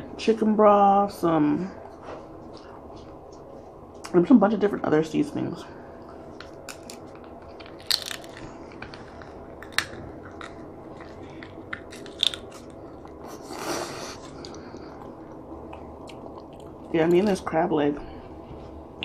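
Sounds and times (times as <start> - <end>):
crab shell cracking: 6.6 - 13.2
chewing: 6.7 - 17.4.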